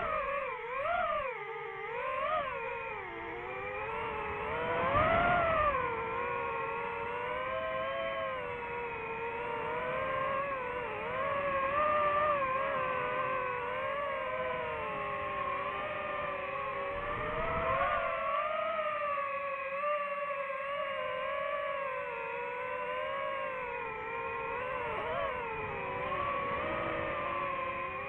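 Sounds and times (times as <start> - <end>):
quadcopter motors whining: 0.0 - 28.0.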